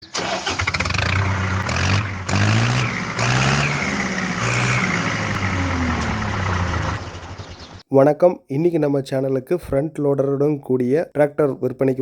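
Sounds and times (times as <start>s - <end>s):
tractor diesel engine revving: 0.0s - 7.8s.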